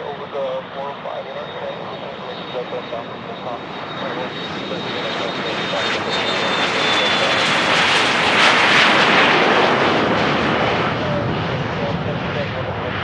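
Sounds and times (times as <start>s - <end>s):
high jet whine: 0.0s - 13.0s
jet passing close: 0.0s - 13.0s.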